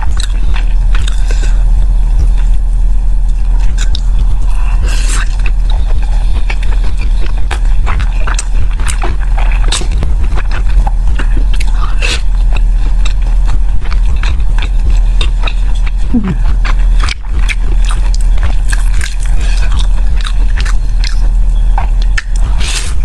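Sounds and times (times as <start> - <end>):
chewing with wet mouth clicks: 0.0 - 1.4, 5.2 - 16.0, 16.6 - 22.6
steady low hum: 0.0 - 23.0.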